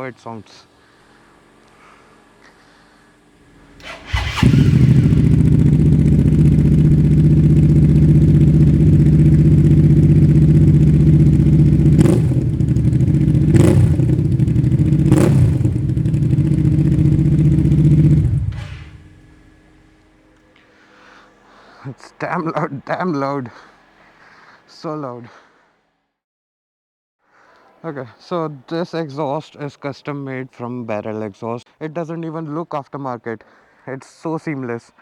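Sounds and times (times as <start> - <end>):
motorcycle engine: 3.4 - 20.4
engine throttle blips: 3.5 - 20.2.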